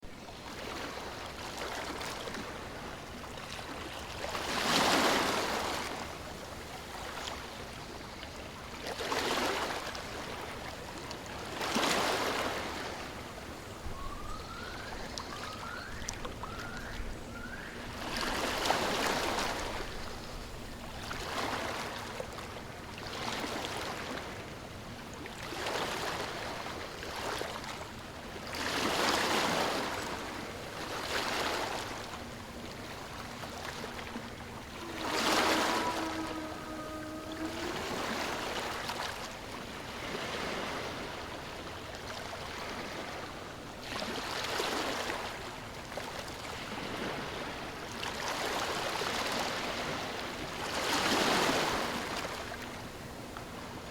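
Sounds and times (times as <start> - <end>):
ocean waves washing onto shore: 0.3 - 53.9
bird short rising calls: 34.5 - 39.1.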